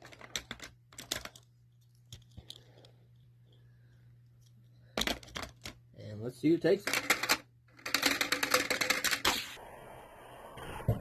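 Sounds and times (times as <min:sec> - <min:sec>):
faint steady hum: 0:00.0 - 0:11.0
toy cars and track clacking: 0:06.8 - 0:09.5.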